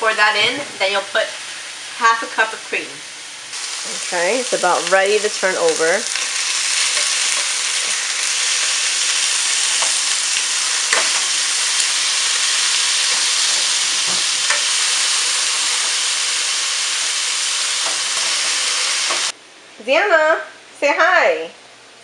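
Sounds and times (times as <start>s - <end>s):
meat sizzling in frying pan: 0.8s - 19.4s.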